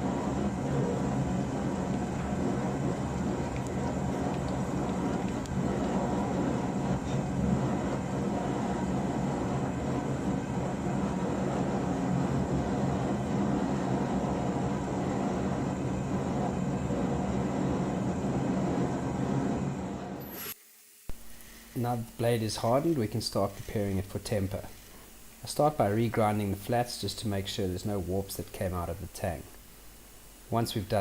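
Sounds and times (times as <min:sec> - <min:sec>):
low hum: 0:00.0 - 0:24.1.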